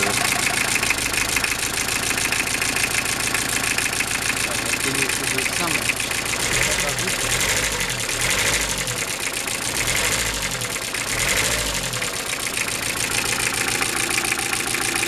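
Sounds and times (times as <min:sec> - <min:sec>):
diesel engine knocking: 0:00.0 - 0:15.0.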